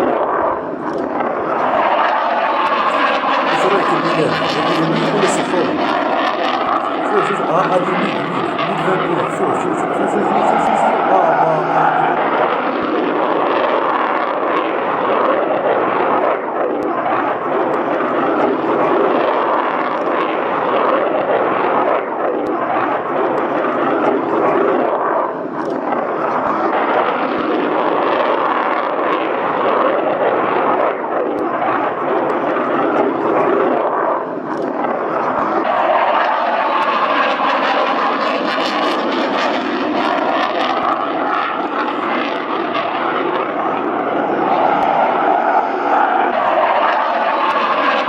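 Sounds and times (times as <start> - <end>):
airplane engines roaring: 0.6 - 13.5, 35.1 - 48.0.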